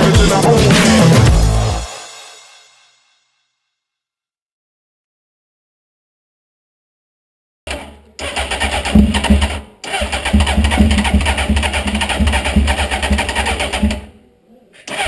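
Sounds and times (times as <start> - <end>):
motorcycle engine starting and running: 7.7 - 14.1.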